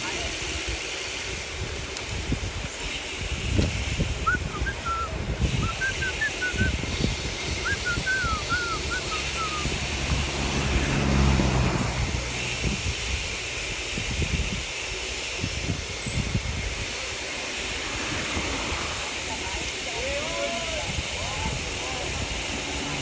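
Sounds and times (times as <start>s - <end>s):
wind buffeting microphone: 0.5s - 23.0s
engine hum: 4.2s - 23.0s
birds chirping: 4.3s - 11.2s.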